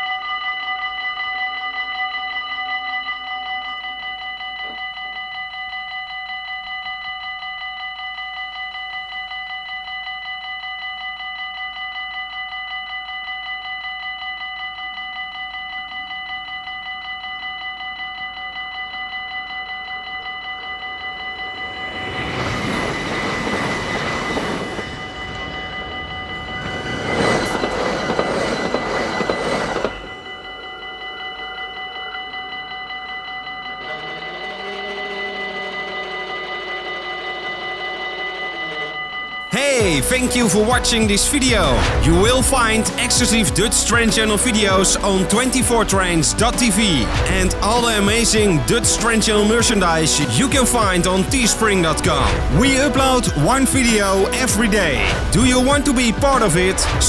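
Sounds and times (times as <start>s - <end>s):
level crossing bells ringing: 0.0s - 57.0s
train rushing past: 20.6s - 32.7s, 33.3s - 57.0s.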